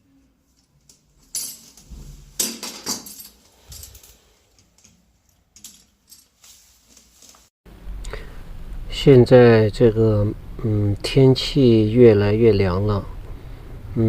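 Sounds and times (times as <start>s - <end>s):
metal objects clinking: 0.5s - 7.4s.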